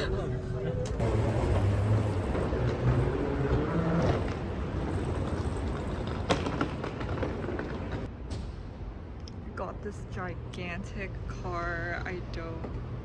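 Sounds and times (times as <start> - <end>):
vehicle engine rumble: 0.0 - 9.6.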